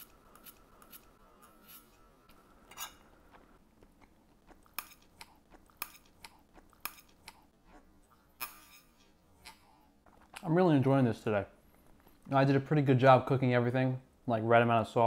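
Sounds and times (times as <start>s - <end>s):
faint chewing with clicks: 3.2s - 8.4s.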